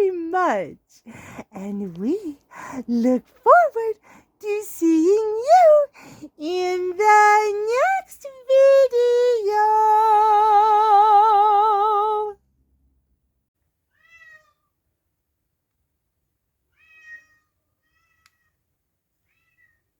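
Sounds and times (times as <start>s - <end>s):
cat meowing: 13.9s - 14.7s, 16.7s - 18.6s, 19.2s - 19.9s
faint high-pitched meows: 13.9s - 14.7s, 16.7s - 18.6s, 19.2s - 19.9s.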